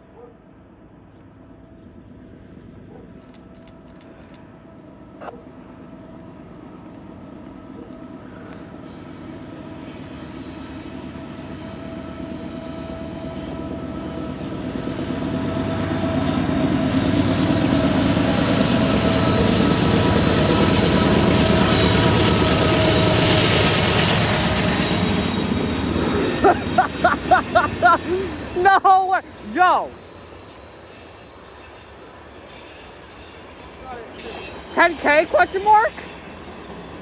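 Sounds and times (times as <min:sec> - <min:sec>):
freight train approaching: 0:00.0 - 0:37.0.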